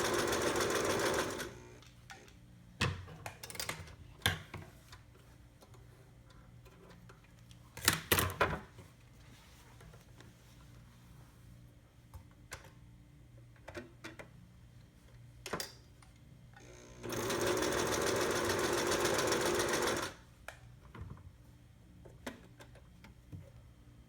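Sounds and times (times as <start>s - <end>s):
sewing machine stitching: 0.0s - 1.7s, 16.9s - 20.2s.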